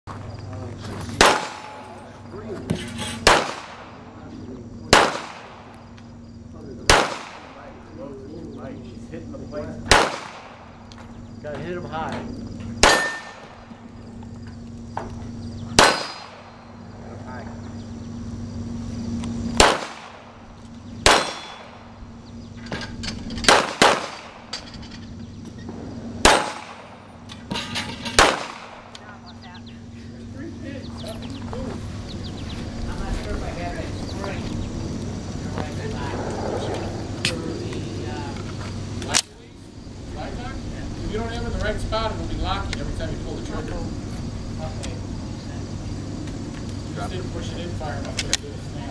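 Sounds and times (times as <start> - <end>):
pistol shots: 1.1 - 2.0, 3.2 - 4.0, 4.9 - 5.8, 6.9 - 7.7, 9.9 - 11.0, 12.8 - 13.7, 15.7 - 16.7, 19.6 - 20.4, 21.0 - 21.9, 23.4 - 24.5, 26.2 - 27.0, 28.1 - 29.0
steel targets clanging: 12.8 - 13.6, 15.8 - 16.6, 21.1 - 21.8, 26.2 - 28.6.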